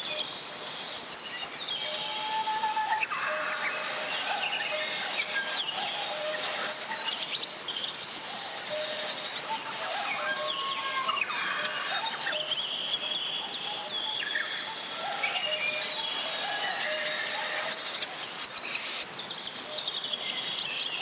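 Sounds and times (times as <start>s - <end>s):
mountain stream rushing: 2.7s - 13.6s, 14.2s - 19.5s.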